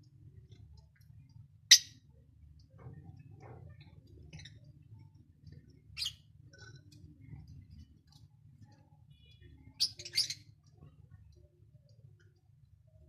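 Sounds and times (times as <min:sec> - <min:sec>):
lovebirds chirping: 0:09.1 - 0:10.8.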